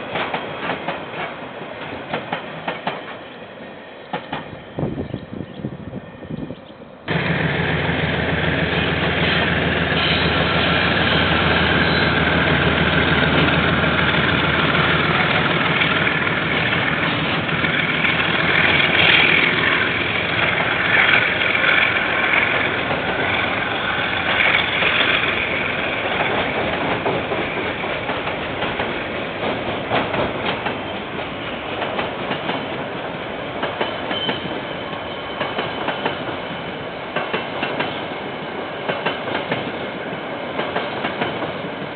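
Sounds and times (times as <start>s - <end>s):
diesel locomotive engine hum: 0.0s - 41.9s
train wheels clattering: 7.1s - 33.0s, 33.6s - 36.5s, 38.8s - 39.8s, 40.5s - 41.9s.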